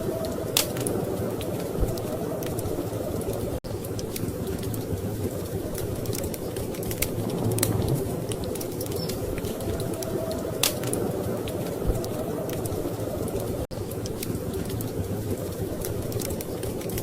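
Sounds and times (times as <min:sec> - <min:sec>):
low rumble of storm wind: 0:00.0 - 0:17.0
wood fire crackling: 0:00.0 - 0:17.0.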